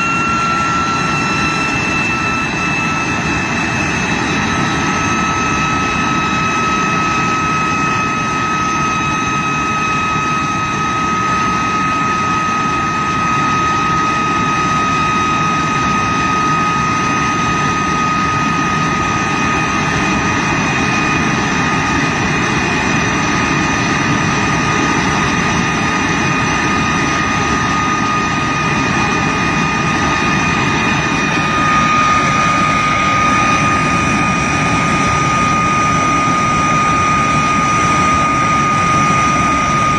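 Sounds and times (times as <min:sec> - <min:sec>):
jet engine whine and roar: 0:00.0 - 0:39.9.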